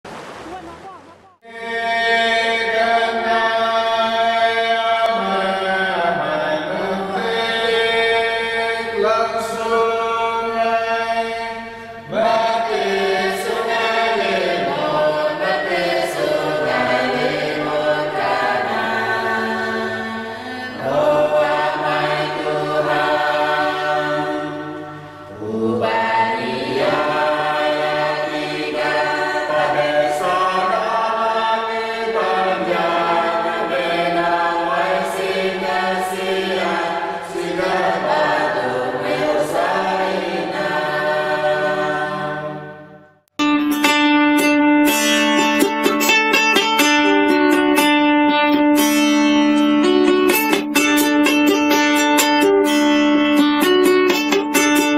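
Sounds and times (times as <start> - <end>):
choir singing: 1.4 - 43.1.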